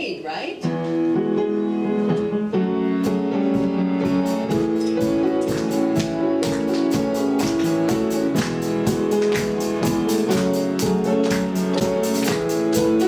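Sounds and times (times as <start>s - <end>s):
keyboard chords: 0.0s - 13.0s
guitar: 0.8s - 13.0s
worship band playing: 0.8s - 13.0s
steady drum beat: 3.1s - 13.0s.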